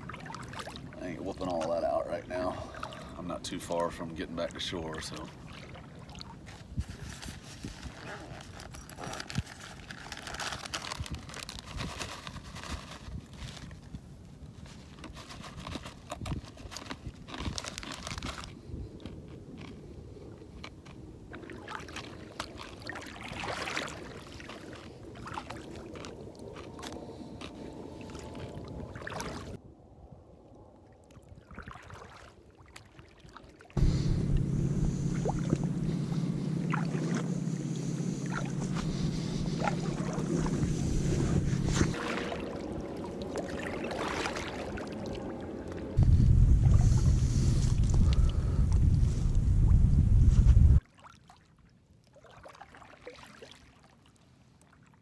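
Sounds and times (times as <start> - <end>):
wind rumble on microphone: 5.7 - 22.6, 33.8 - 50.8.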